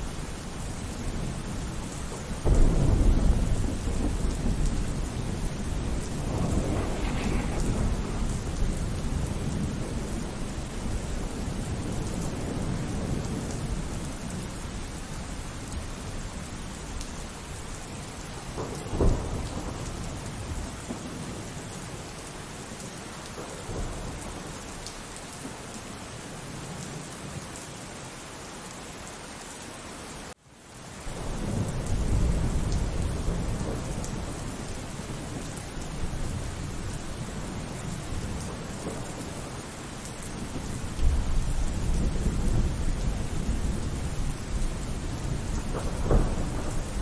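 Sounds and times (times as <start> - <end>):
low rumble of thunder: 0.0 - 24.9, 31.0 - 47.0
steady rain: 0.0 - 47.0
sharp thunderclap: 2.4 - 13.8, 18.5 - 21.4, 40.4 - 47.0.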